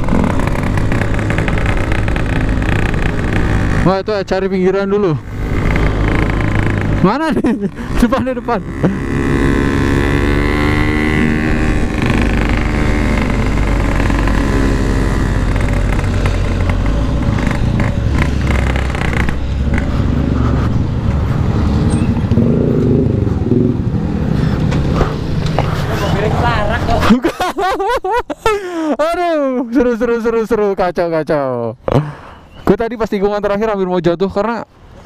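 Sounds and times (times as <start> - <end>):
two-stroke motorcycle engine: 0.0 - 25.6.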